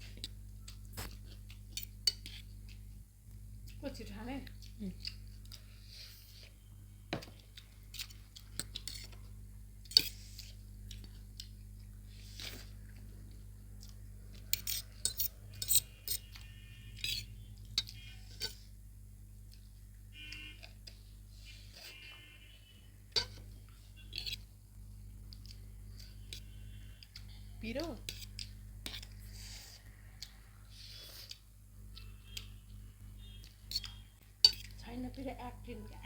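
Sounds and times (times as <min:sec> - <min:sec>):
cutlery clinking and scraping plates: 0:14.6 - 0:16.3.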